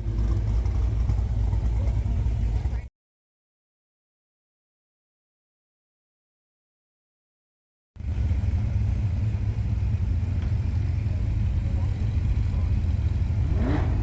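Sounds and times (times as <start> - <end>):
car engine idling: 0.0 - 2.9, 8.0 - 14.0.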